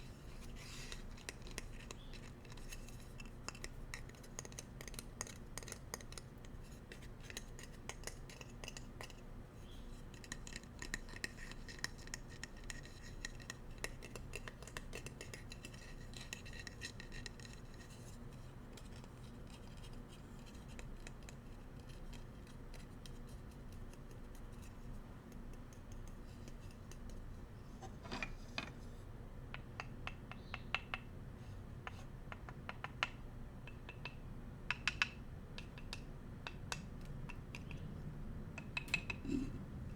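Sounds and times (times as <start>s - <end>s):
bamboo utensils clicking: 38.6s - 39.4s.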